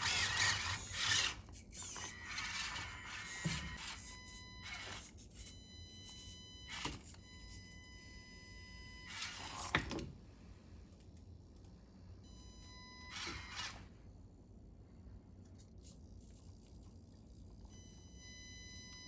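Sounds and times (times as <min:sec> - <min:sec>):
small electric motor whining: 0:00.0 - 0:07.2, 0:09.0 - 0:09.8, 0:13.0 - 0:13.9.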